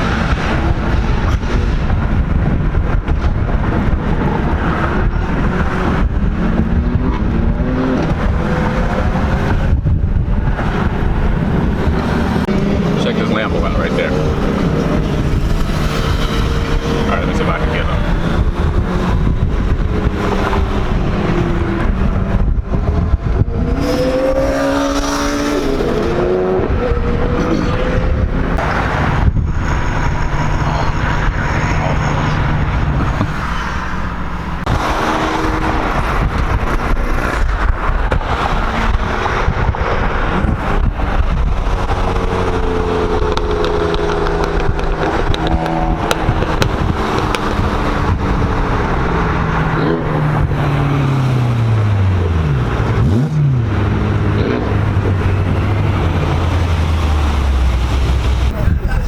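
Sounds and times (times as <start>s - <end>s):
car engines revving: 0.0s - 59.0s
road and wind noise: 0.0s - 59.0s.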